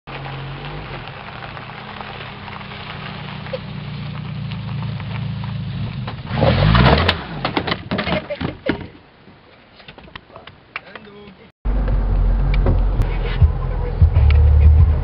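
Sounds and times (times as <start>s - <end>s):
car engine revving: 0.1s - 7.6s, 11.7s - 15.0s.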